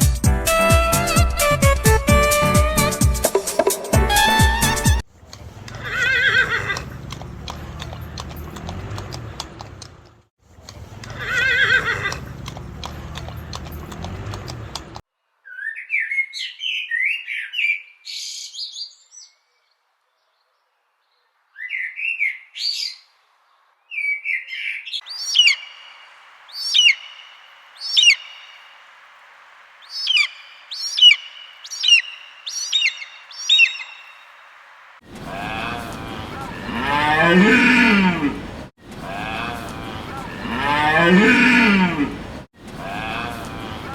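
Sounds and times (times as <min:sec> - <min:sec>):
horse whinnying: 0:04.0 - 0:05.0, 0:05.8 - 0:06.9, 0:11.2 - 0:12.2, 0:36.6 - 0:38.5, 0:40.4 - 0:42.2
parrot squawking: 0:04.0 - 0:05.0, 0:24.6 - 0:26.0, 0:26.6 - 0:28.6, 0:29.9 - 0:34.1
swan calling: 0:04.0 - 0:05.0, 0:25.0 - 0:29.1, 0:29.8 - 0:34.4.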